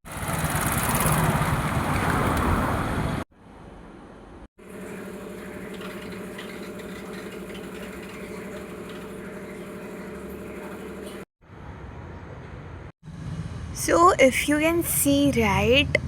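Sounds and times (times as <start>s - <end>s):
mechanical hum: 2.6s - 13.9s.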